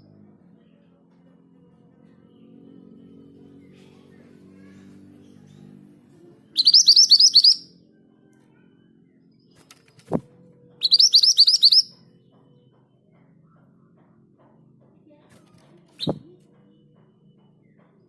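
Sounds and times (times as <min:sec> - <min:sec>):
bird whistling rising notes: 0:06.6 - 0:07.7, 0:10.8 - 0:11.9, 0:16.0 - 0:16.2.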